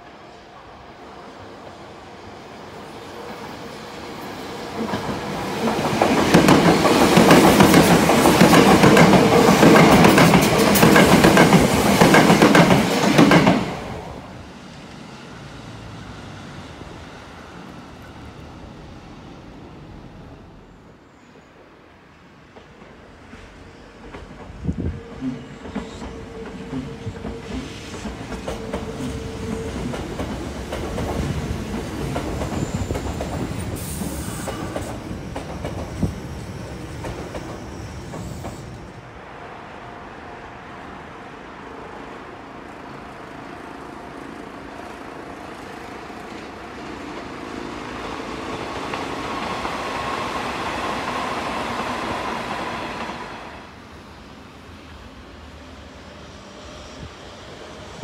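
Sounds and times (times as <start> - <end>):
train running with faint whine: 0.0 - 58.0
train wheels clacking over rail joints: 4.8 - 13.8, 24.0 - 36.2.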